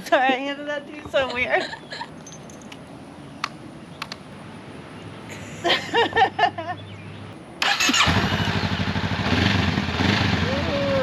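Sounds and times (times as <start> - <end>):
motorcycle engine starting and idling: 7.6 - 11.0.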